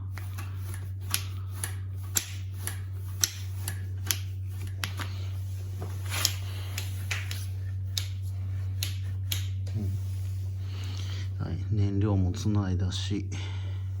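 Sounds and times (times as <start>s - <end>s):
steady low hum: 0.0s - 14.0s
light sharp clicks and snaps: 6.2s - 9.8s.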